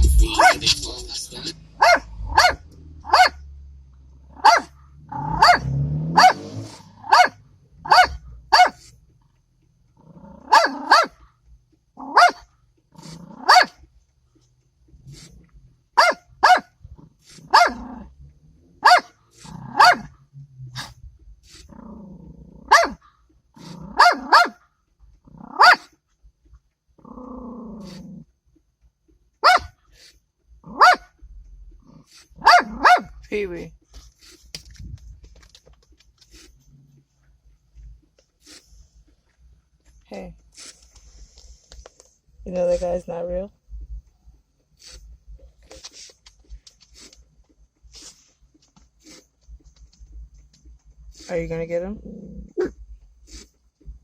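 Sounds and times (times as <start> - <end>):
small dog barking: 1.8 - 3.4, 4.3 - 8.9, 10.4 - 11.2, 12.0 - 13.8, 16.0 - 18.0, 18.8 - 20.2, 22.6 - 24.6, 25.4 - 26.0, 29.4 - 29.8, 30.6 - 31.1, 32.3 - 33.2
dog growling: 10.0 - 10.9, 12.9 - 13.5, 17.0 - 18.2, 19.4 - 20.0, 20.8 - 22.8, 23.5 - 24.3, 25.2 - 25.7, 27.0 - 28.3, 31.8 - 33.0, 51.2 - 53.6.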